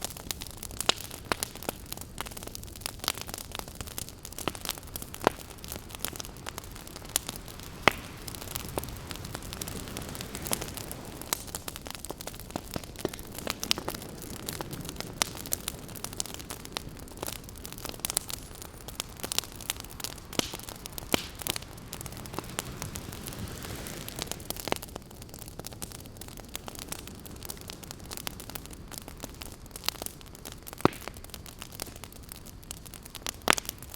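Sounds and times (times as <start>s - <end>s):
campfire crackling and popping: 0.0s - 33.9s
ocean waves: 5.4s - 11.9s, 18.3s - 24.8s.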